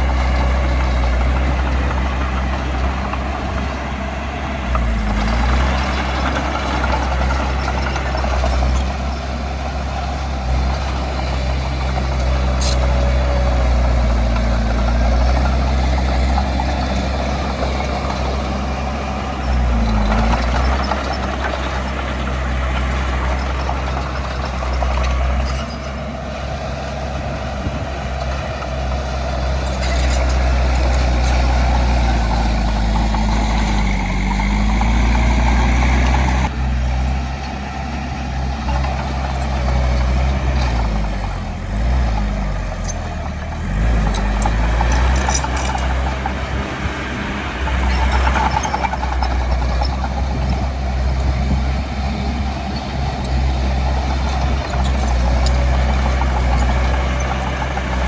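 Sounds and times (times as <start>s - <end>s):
diesel machinery engine running: 0.0s - 58.0s.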